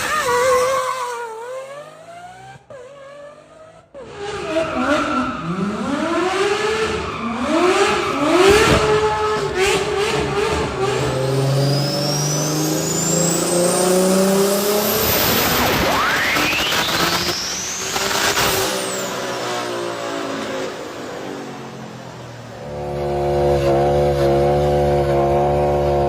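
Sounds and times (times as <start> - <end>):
sports car engine accelerating: 0.3 - 26.0
thin whine rising in pitch: 11.6 - 19.2.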